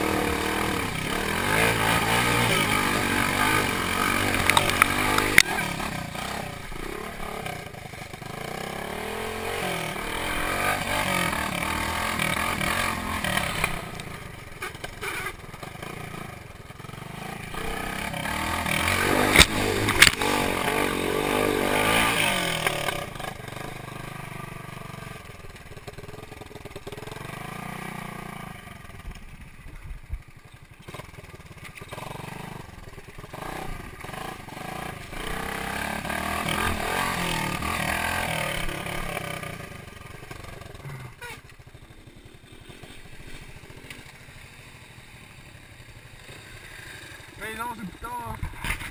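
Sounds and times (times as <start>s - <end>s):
motorcycle engine revving: 0.0s - 48.9s
sharp clicks: 4.3s - 5.5s, 19.2s - 20.3s.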